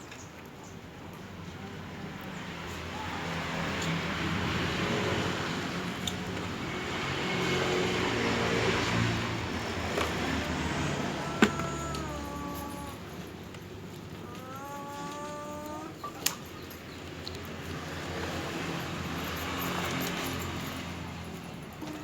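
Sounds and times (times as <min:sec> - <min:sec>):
vehicle engine passing: 0:01.7 - 0:22.0.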